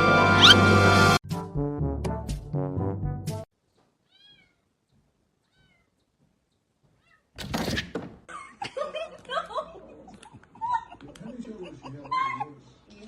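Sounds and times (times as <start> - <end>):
background music: 0.0 - 3.5
cat meowing faintly: 4.0 - 4.7, 5.4 - 6.0, 6.9 - 7.3.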